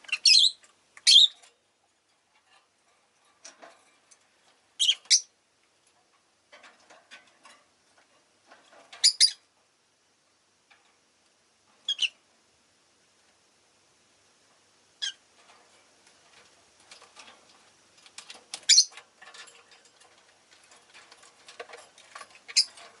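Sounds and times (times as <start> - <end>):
scratchy bird chatter: 0.0 - 1.5, 16.2 - 23.0
high-pitched bird chirps: 0.1 - 1.4, 4.8 - 5.3, 9.0 - 9.4, 11.9 - 12.2, 18.7 - 18.9.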